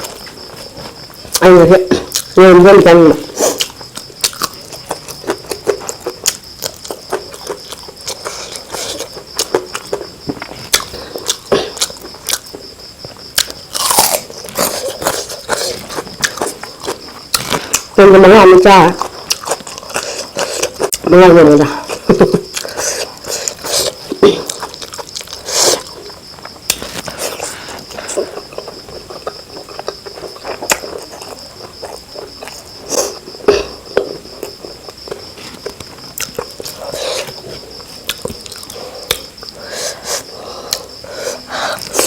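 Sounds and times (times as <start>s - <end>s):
wet chewing and lip smacks: 34.4s - 39.6s.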